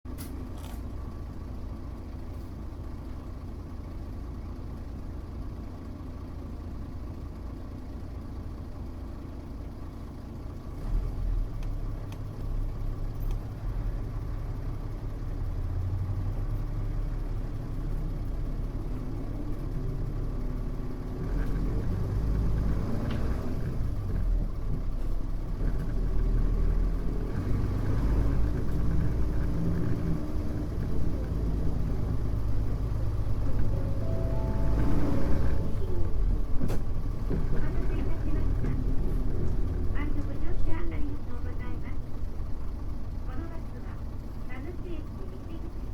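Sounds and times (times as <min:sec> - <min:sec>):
bus diesel engine: 0:00.0 - 0:45.9.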